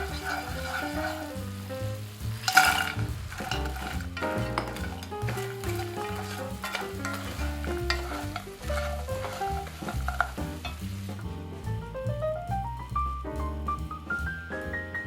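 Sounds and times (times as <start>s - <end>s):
food sizzling in a pan: 0.0s - 11.2s
background music: 0.0s - 15.0s.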